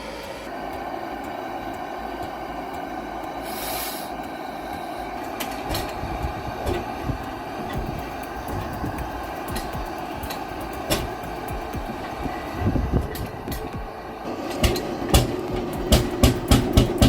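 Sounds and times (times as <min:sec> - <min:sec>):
brief hiss: 0:03.4 - 0:04.2
engine running: 0:04.1 - 0:17.0
sharp clicks and knocks: 0:05.2 - 0:17.0.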